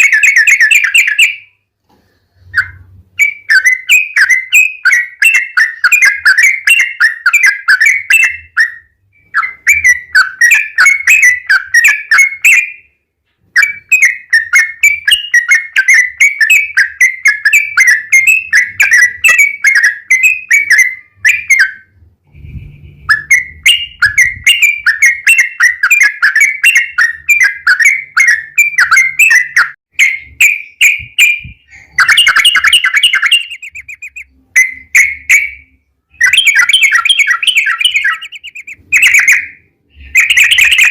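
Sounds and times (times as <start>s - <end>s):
bird singing chattering notes: 2.6s - 12.8s, 23.0s - 40.9s.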